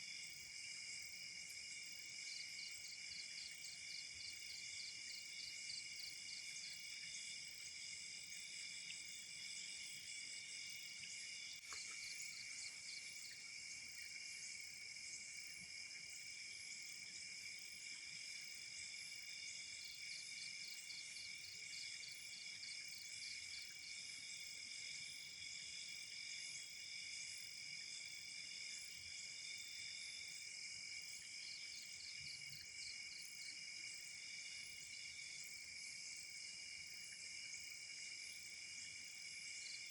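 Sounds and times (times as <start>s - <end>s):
night insects trilling: 0.0s - 39.9s
faint click: 11.6s - 12.0s.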